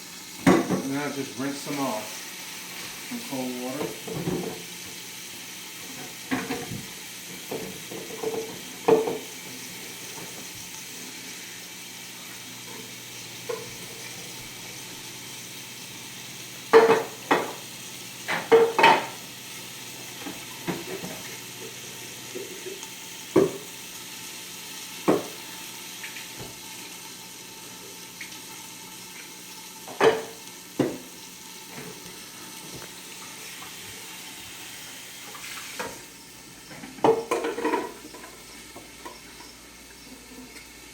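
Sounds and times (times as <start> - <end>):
chicken sizzling in a frying pan: 0.0 - 40.9
dishes and utensils clattering: 7.5 - 9.2, 16.7 - 17.6, 18.3 - 19.2, 29.9 - 31.0, 36.7 - 38.4.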